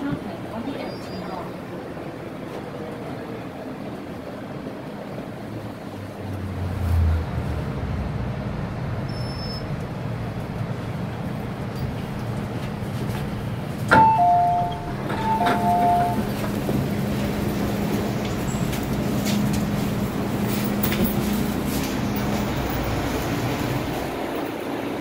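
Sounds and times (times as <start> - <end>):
low train hum: 0.0 - 25.0
train door click: 13.8 - 19.8
two-note door chime: 13.9 - 16.2.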